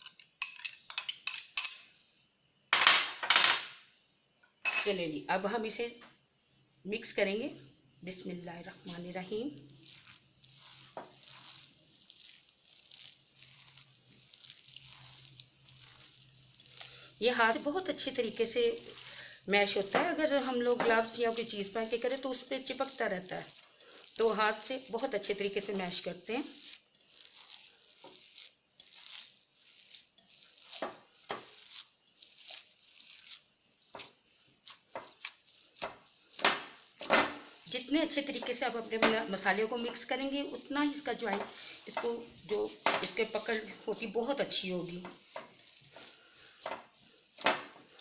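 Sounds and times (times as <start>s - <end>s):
hands squelching minced meat: 8.9s - 42.0s.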